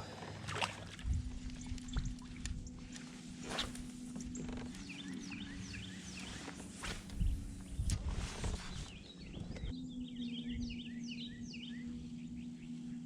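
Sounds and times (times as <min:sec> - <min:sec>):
steady low hum: 0:00.0 - 0:13.0
small water splashes: 0:00.4 - 0:02.5.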